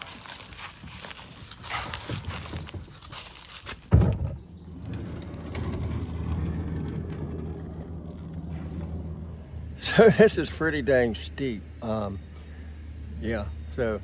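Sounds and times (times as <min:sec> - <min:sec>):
footsteps crunching and rustling: 0:00.0 - 0:03.9
low steady rumble: 0:00.0 - 0:14.0
loud thump: 0:03.9 - 0:04.4.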